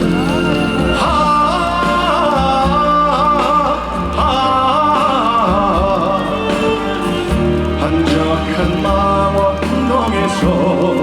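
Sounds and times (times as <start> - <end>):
bass and drums: 0.0 - 11.0.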